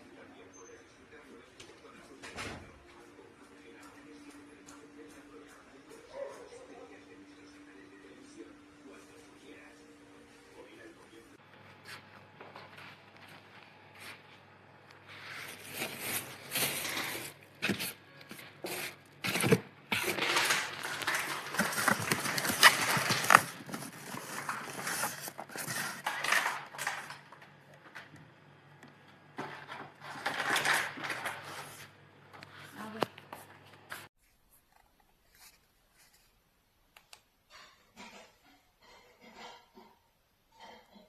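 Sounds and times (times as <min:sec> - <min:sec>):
objects rustling and clicking: 0:15.1 - 0:28.2, 0:29.4 - 0:36.4.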